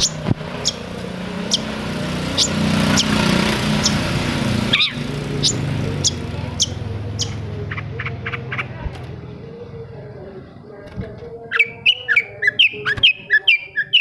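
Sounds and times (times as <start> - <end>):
bird giving sharp high calls: 0.0 - 8.7
low motor hum: 0.0 - 11.5.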